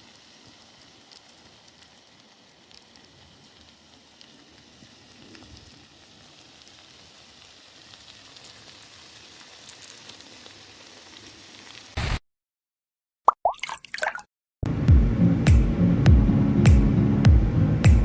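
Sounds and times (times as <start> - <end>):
food crackling over wood fire: 0.0 - 12.1
loud burst of noise: 12.0 - 12.2.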